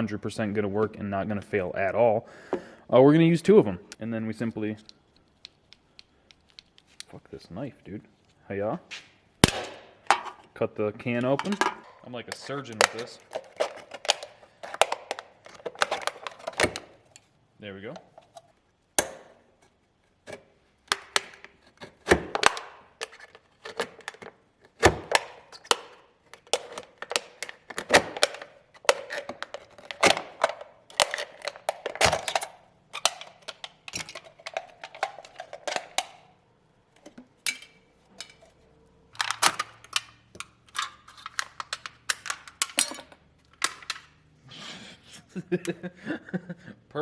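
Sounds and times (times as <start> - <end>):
aluminium cans crinkling and clicking: 10.0 - 16.9, 20.3 - 36.3, 37.0 - 44.2.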